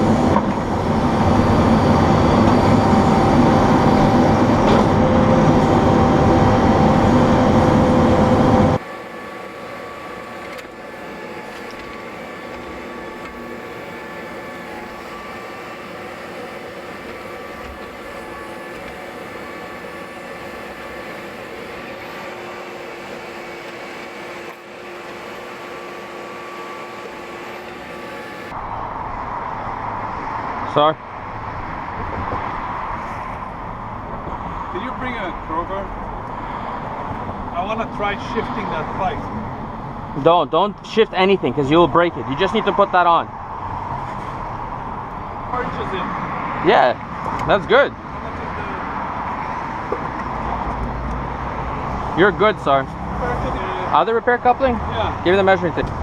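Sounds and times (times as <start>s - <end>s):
heavy machine engine running: 0.0s - 29.6s
held tones: 1.5s - 28.5s.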